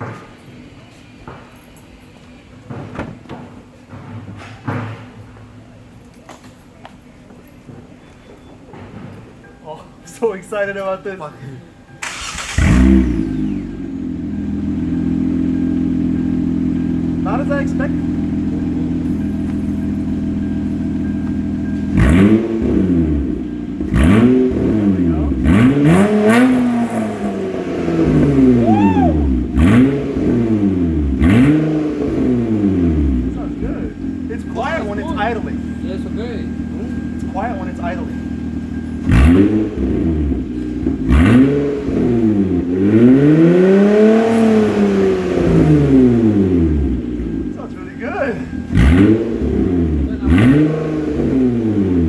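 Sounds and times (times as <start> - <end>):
car engine idling and revving: 11.9 - 52.0.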